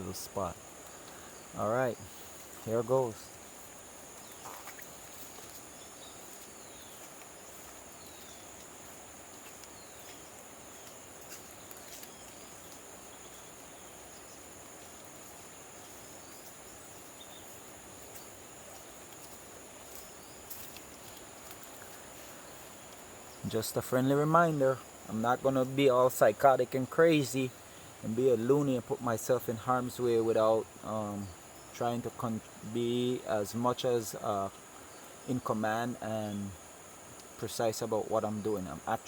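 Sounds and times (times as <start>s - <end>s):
faint hiss: 0.0s - 39.0s
insects droning: 0.0s - 39.0s.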